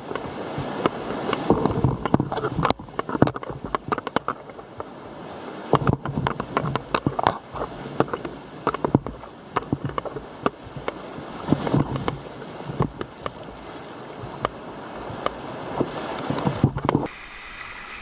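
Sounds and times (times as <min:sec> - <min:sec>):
paddle strokes and hull knocks: 0:00.0 - 0:18.0
water rushing through rapids: 0:00.0 - 0:18.0.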